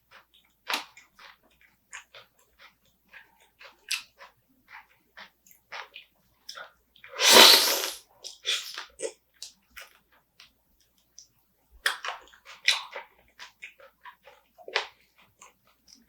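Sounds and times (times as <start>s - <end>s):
crunching and chewing crab shell: 11.8s - 15.6s.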